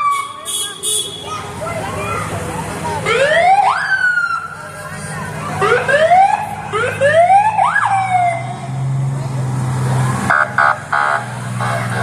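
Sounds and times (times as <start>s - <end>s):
truck engine running: 0.0s - 12.0s
emergency siren whooping: 2.9s - 8.6s.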